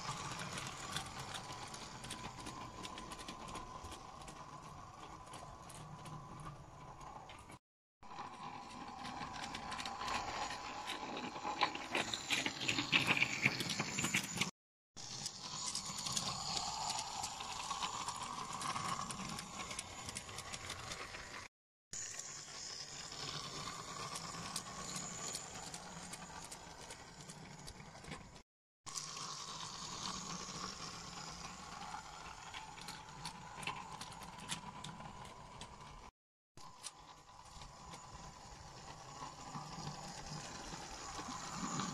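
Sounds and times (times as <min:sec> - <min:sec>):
wheels clicking over rail joints: 0:00.0 - 0:07.6, 0:29.2 - 0:36.1
wheels clicking over rails: 0:00.0 - 0:21.5, 0:22.4 - 0:36.1
model train motor whine: 0:00.0 - 0:41.9.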